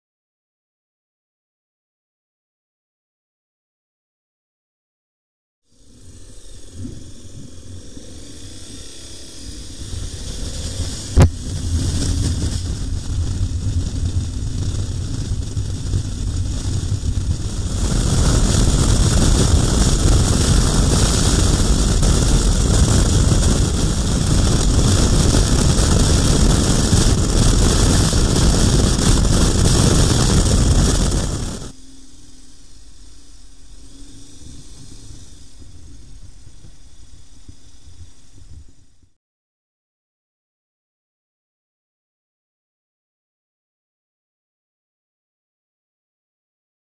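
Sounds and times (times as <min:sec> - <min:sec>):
wind rush over microphone: 0:05.8 - 0:31.8, 0:33.8 - 0:39.2
motorcycle engine: 0:10.1 - 0:31.8.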